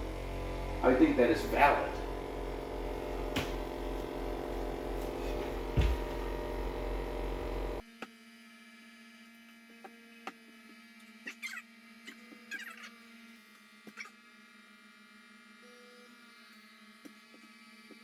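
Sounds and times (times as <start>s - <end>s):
electrical hum: 0.0s - 7.8s
short knock: 5.8s - 6.1s.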